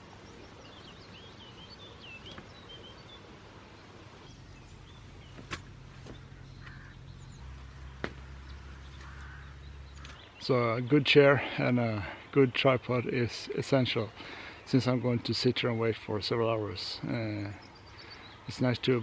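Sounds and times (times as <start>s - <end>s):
low steady hum: 0.0s - 19.0s
outdoor background noise: 0.0s - 19.0s.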